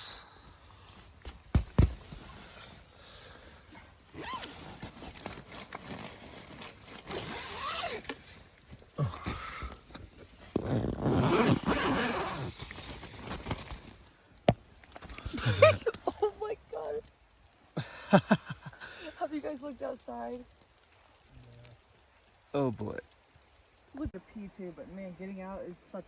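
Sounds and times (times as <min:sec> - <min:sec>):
nylon fabric rustling: 0:00.8 - 0:03.0, 0:03.6 - 0:14.6
tent zipper pulled open: 0:01.8 - 0:02.9, 0:03.7 - 0:14.1.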